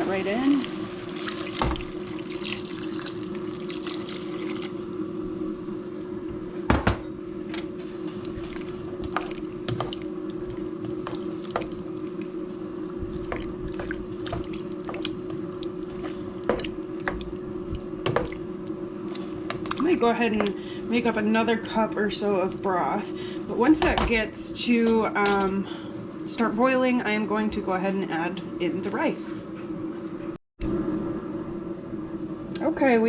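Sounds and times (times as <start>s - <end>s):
steady low hum: 0.0s - 33.0s
broth poured into sizzling pan: 0.5s - 5.1s.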